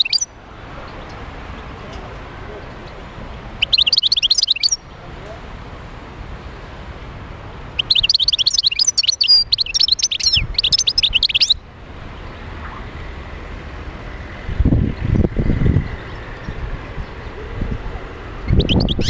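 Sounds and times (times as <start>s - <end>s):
finch twittering song: 0.0s - 0.3s, 3.6s - 4.8s, 7.8s - 11.6s, 18.4s - 19.0s.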